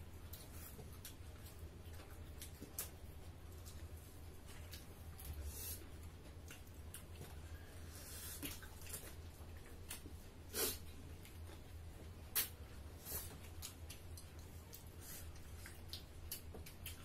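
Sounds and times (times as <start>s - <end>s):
people chewing: 0.0s - 17.0s
steady low hum: 0.0s - 17.0s
lip smacks: 12.3s - 17.0s.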